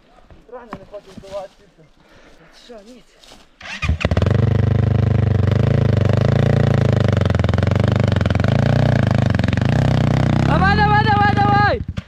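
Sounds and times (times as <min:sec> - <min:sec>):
motorcycle engine starting and running: 0:03.6 - 0:12.0.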